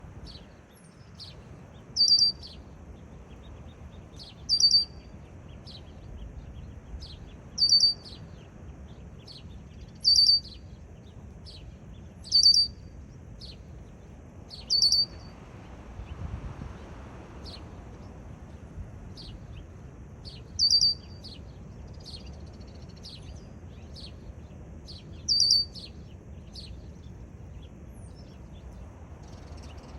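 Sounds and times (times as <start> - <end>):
faint bird chirps: 0.0 - 15.4, 16.0 - 29.9
blackbird calling: 2.0 - 2.5, 4.5 - 5.0, 7.6 - 8.0, 10.0 - 10.5, 12.3 - 12.8, 14.6 - 15.3, 20.6 - 21.2, 25.3 - 25.8.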